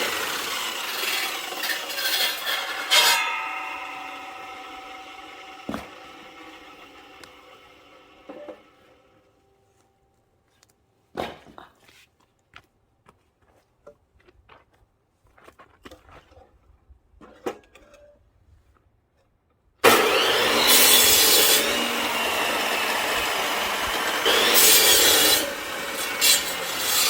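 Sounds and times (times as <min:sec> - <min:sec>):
power saw cutting log: 0:00.0 - 0:09.2, 0:19.8 - 0:27.0
wood knocking and clattering: 0:05.7 - 0:06.0.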